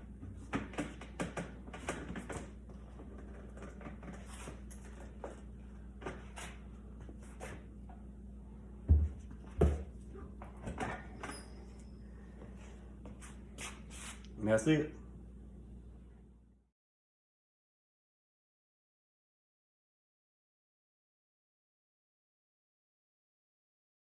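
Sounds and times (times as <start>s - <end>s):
heavy thumps: 8.8s - 10.0s.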